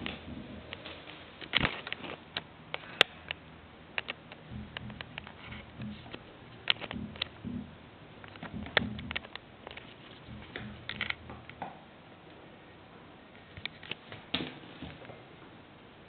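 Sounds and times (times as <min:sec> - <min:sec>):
soft low thumps: 0:00.0 - 0:00.7, 0:04.4 - 0:09.2, 0:10.2 - 0:11.5.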